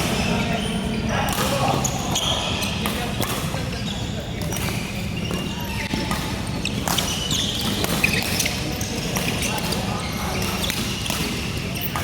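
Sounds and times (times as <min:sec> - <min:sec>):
shoe squeaks on court floor: 0:00.1 - 0:12.0
racket hitting shuttlecock: 0:02.8 - 0:03.6, 0:04.4 - 0:12.0.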